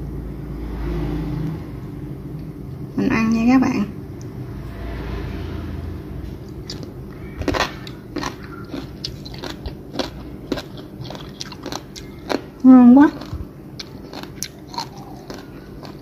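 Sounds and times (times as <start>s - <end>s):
person chewing with crunches: 6.4s - 16.0s.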